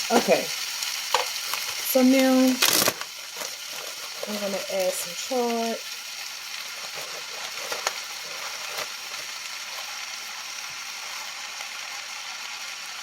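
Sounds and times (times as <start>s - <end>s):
oil sizzling in a frying pan: 0.0s - 13.0s.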